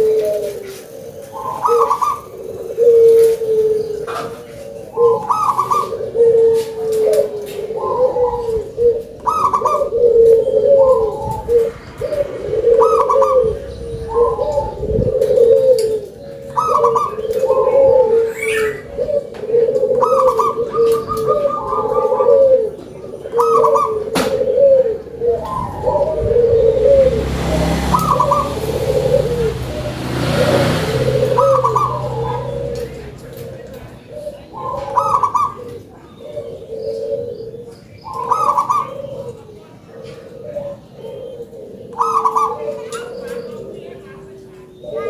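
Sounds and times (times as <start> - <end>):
dove cooing: 0.0 - 45.0
small birds chirping: 0.0 - 45.0.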